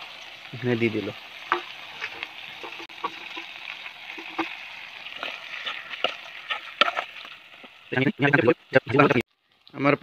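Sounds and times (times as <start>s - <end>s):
food sizzling in a pan: 0.0s - 10.0s
metal spoon scraping a pan: 1.5s - 7.3s.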